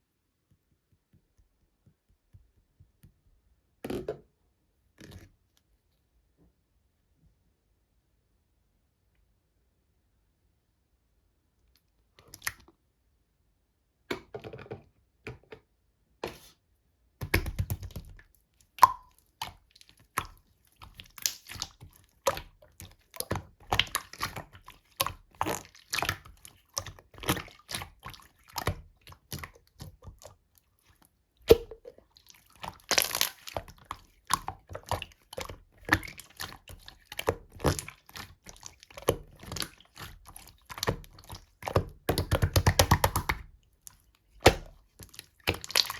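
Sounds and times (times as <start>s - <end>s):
slime squishing and popping: 17.2s - 30.3s, 31.4s - 45.9s.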